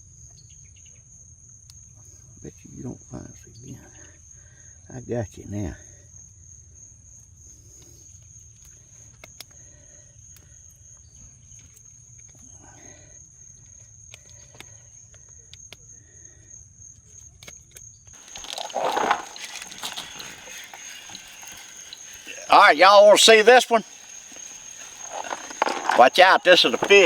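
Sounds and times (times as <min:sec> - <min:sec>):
faint clicks: 0:18.2 - 0:27.0
insects droning: 0:18.2 - 0:27.0.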